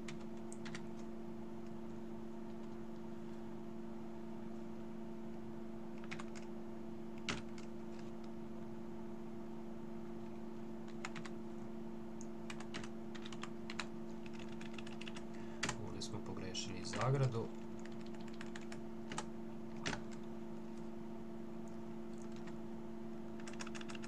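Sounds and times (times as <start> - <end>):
computer keyboard typing: 0.0 - 1.1, 6.0 - 6.5, 7.2 - 8.1, 10.9 - 11.4, 12.5 - 15.8, 16.8 - 20.3, 22.1 - 22.6, 23.4 - 24.0
steady low hum: 0.0 - 24.0.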